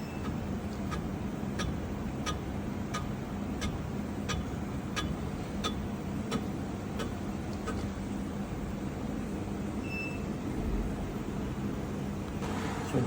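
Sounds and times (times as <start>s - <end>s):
machining equipment humming: 0.0s - 13.0s
light even ticking: 0.2s - 7.9s.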